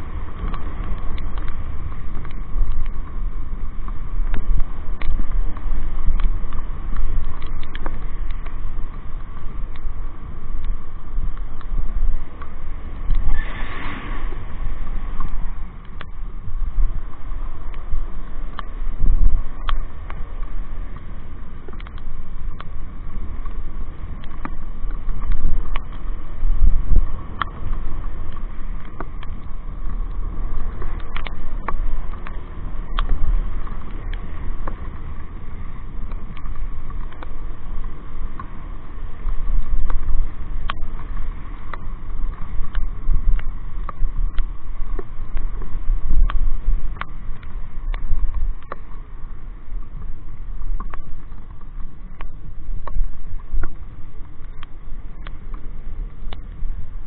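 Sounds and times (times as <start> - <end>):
sharp ticks: 0.0 - 13.7, 14.5 - 57.0
wind buffeting microphone: 0.0 - 57.0.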